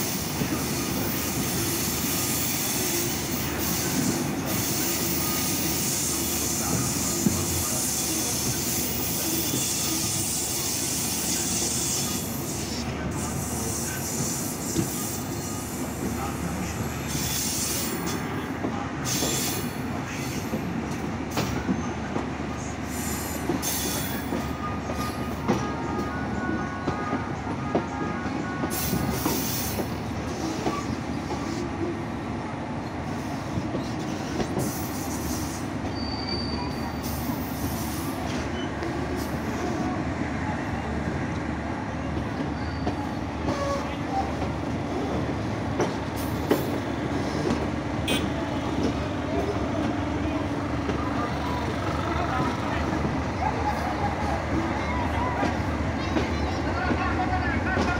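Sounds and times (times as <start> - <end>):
wheels rumbling on rail: 0.0 - 57.9
faint wheel squeal: 34.0 - 38.8, 42.4 - 44.4.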